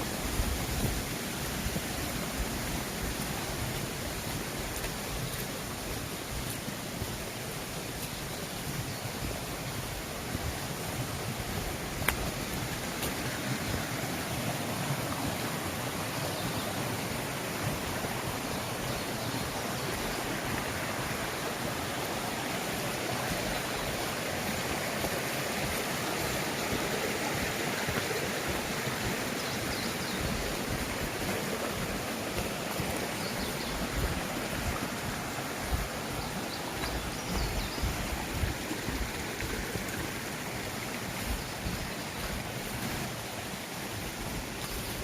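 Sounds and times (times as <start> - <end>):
stream rushing over rocks: 0.0 - 45.0.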